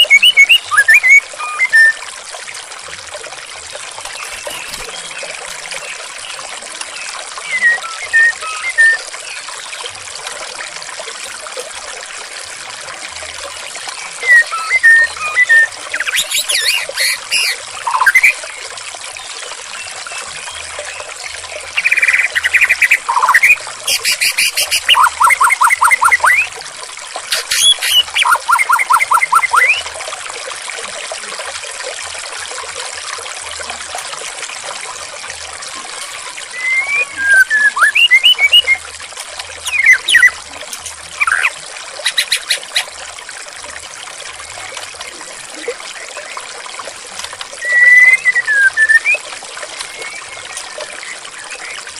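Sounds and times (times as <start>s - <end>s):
songbird singing: 0.0s - 2.0s, 4.1s - 9.8s, 14.0s - 18.4s, 19.2s - 26.5s, 27.3s - 29.9s, 36.0s - 38.8s, 39.6s - 42.9s, 47.6s - 49.2s
water trickling: 0.0s - 51.9s.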